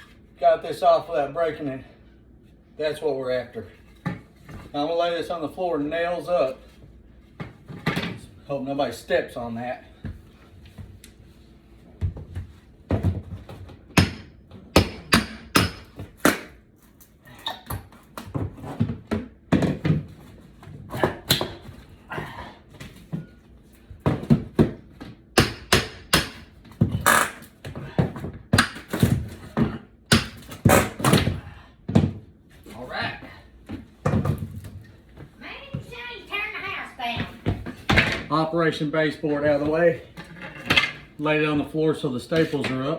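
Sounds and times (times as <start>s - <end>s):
hammer and hatchet knocking wood: 13.9s - 16.6s, 24.0s - 32.2s.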